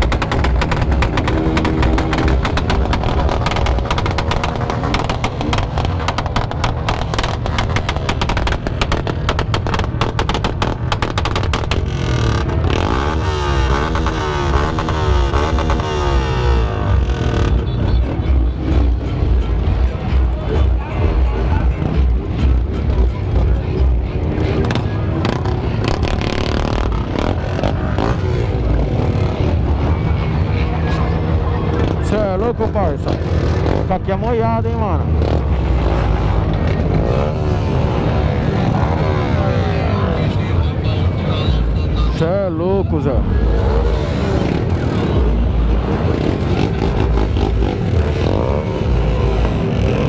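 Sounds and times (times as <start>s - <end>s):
motorcycle exhaust crackling pops: 0.0s - 12.8s
engine revving: 0.0s - 40.6s, 43.0s - 50.0s.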